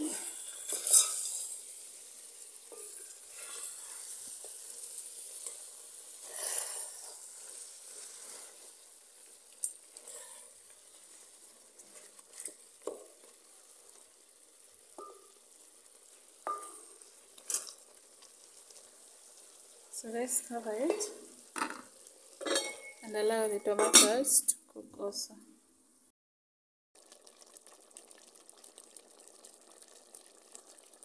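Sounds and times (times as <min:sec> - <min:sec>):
food sizzling in a pot: 0:00.0 - 0:24.6, 0:27.0 - 0:31.0
wooden spoon scraping food: 0:06.2 - 0:08.8, 0:11.0 - 0:12.7.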